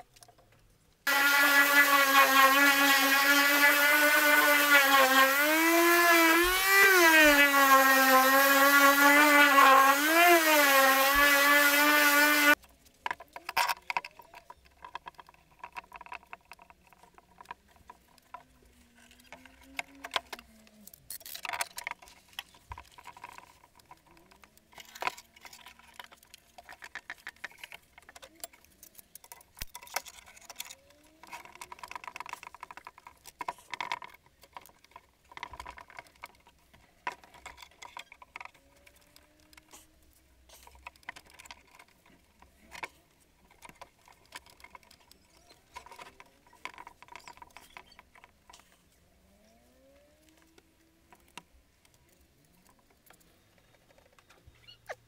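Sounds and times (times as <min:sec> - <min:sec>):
electric sander whining: 0:01.1 - 0:12.6.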